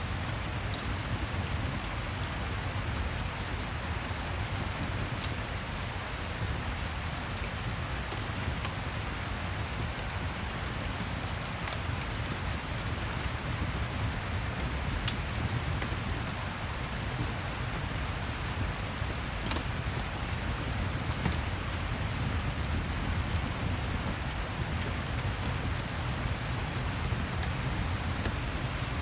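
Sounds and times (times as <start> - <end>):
steady rain: 0.0 - 29.0
wood fire crackling: 10.0 - 29.0.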